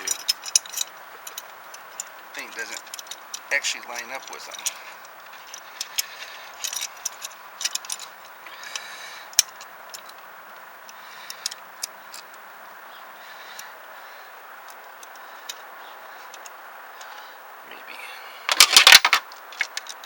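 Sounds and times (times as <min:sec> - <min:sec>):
hand tools clinking on metal: 0:00.0 - 0:10.3, 0:18.5 - 0:20.0
steady hiss: 0:00.0 - 0:20.0.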